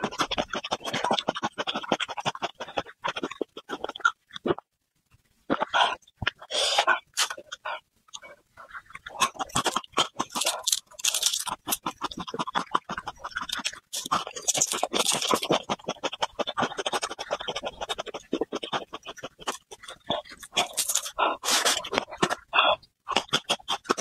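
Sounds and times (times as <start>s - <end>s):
chewing crunchy food: 0.0s - 4.7s, 5.4s - 24.0s
sip through a straw: 20.9s - 22.7s.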